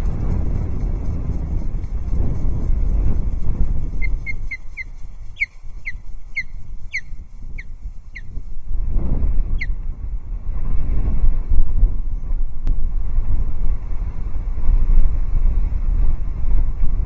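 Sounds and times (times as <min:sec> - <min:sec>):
wind on microphone: 0:00.0 - 0:17.0
osprey whistled chirps: 0:04.0 - 0:08.4.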